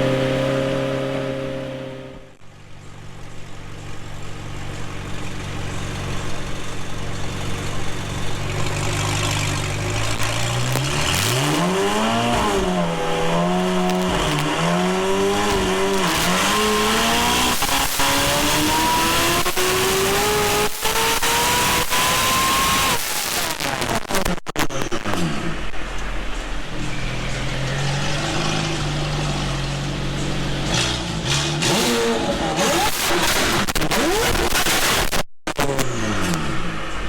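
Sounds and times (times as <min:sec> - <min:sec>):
car engine revving: 0:00.0 - 0:02.4, 0:04.2 - 0:37.0.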